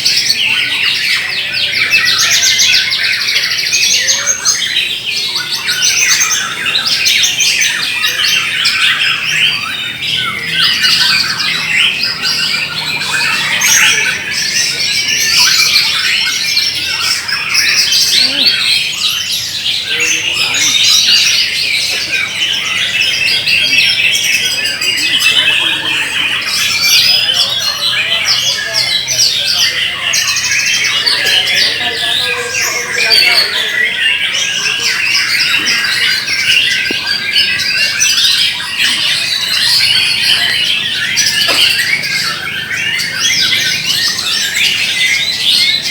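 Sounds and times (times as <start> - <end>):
birds singing whistled trills: 0.0 - 45.9.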